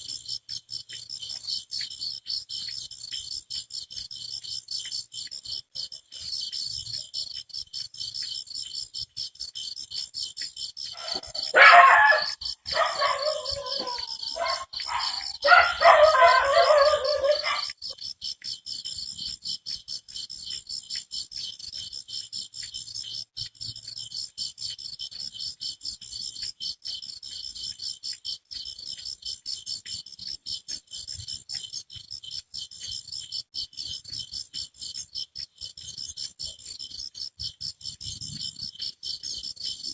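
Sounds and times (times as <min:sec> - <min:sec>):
crickets chirping: 0:00.0 - 0:39.9
dogs barking loudly: 0:10.9 - 0:17.9.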